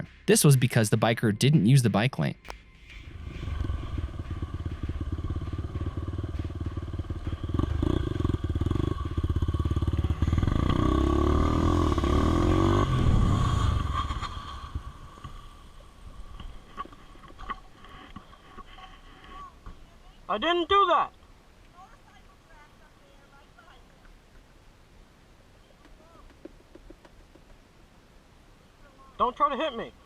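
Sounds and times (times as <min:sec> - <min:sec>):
motorcycle engine running: 0:02.4 - 0:17.7.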